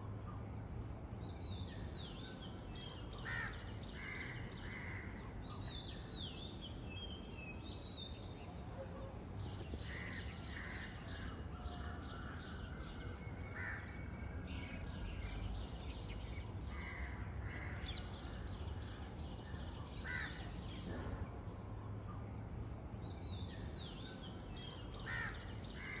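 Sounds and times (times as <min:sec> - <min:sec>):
small birds chirping and trilling: 0:01.2 - 0:21.1, 0:21.9 - 0:26.0
crows cawing: 0:03.2 - 0:05.2, 0:09.8 - 0:12.9, 0:13.5 - 0:14.0, 0:16.7 - 0:18.0, 0:20.0 - 0:20.5, 0:25.0 - 0:26.0.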